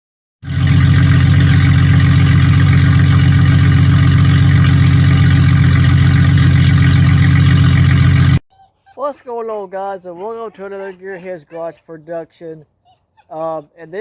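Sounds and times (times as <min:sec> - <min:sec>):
engine running loudly: 0:00.4 - 0:08.4.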